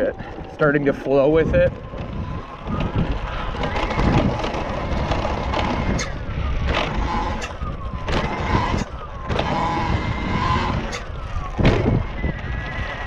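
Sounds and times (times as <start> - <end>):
wind noise on microphone: 0.0 - 13.0
electric motor whine: 0.8 - 13.0.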